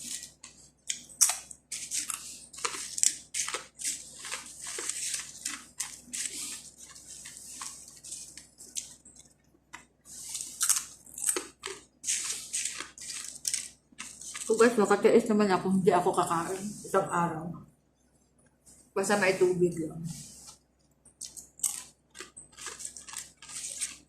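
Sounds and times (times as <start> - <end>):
crunching and chewing flatbread: 0.0 - 14.7, 20.2 - 24.0.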